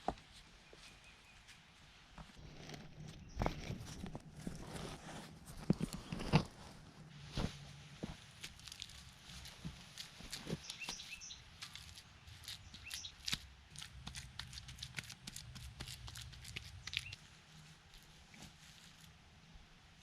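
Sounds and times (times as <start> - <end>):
small irregular clicks and crackles: 8.4 - 19.1.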